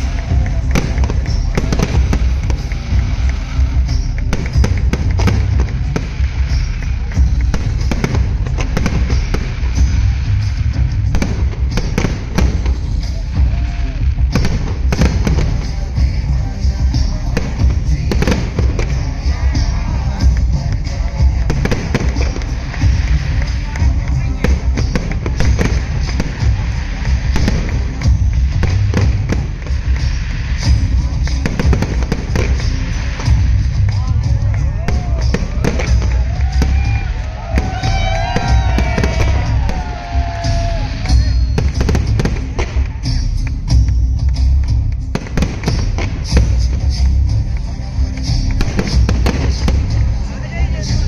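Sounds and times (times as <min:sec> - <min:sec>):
fireworks cracks and bangs: 0:00.0 - 0:51.0
loud music with heavy bass: 0:00.0 - 0:51.0.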